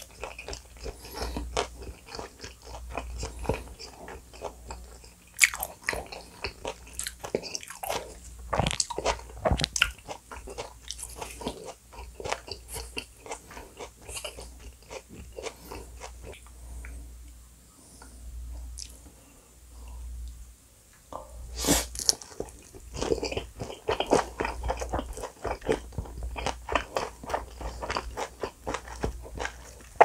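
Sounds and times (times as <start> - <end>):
wet chewing sounds: 0.0 - 17.0, 21.9 - 30.0.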